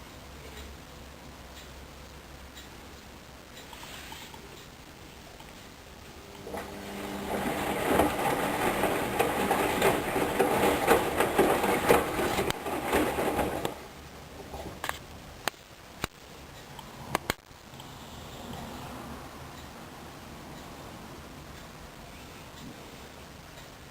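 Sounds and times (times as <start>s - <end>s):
washing machine drum churning: 6.4s - 14.8s.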